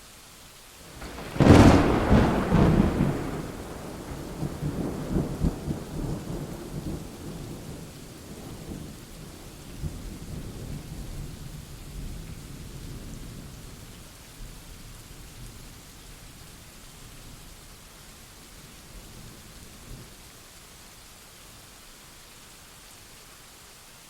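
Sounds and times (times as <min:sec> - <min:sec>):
steady rain: 0:00.0 - 0:24.0
thunderclap rumbling: 0:00.9 - 0:10.8.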